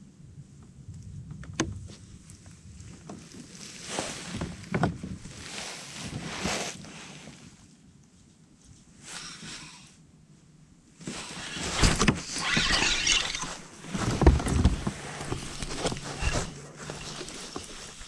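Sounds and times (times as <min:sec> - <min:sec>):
knocks of handling: 0:11.5 - 0:18.0.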